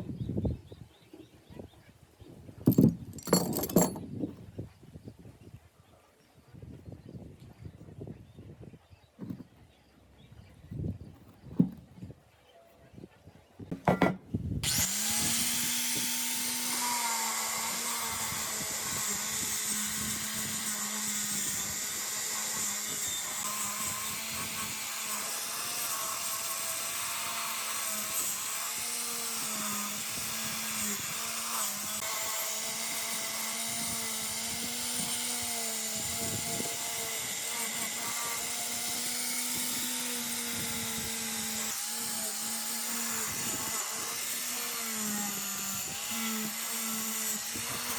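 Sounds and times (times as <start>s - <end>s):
electric power tool running: 14.6s - 47.9s.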